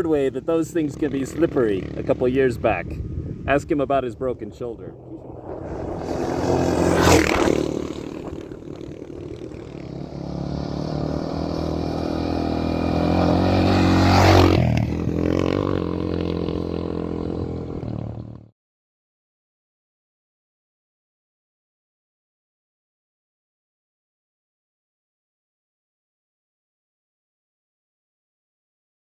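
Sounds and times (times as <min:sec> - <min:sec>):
dirt bike engine revving: 0:00.0 - 0:18.5.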